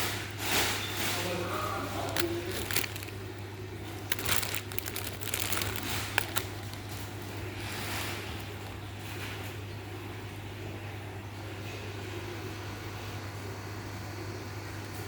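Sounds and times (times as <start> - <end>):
crinkling and rustling: 0.0 - 9.6
steady low hum: 0.9 - 15.0.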